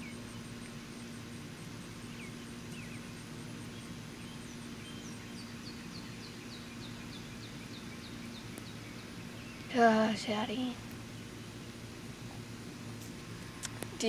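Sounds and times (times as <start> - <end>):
bird chirping: 2.0 - 11.8.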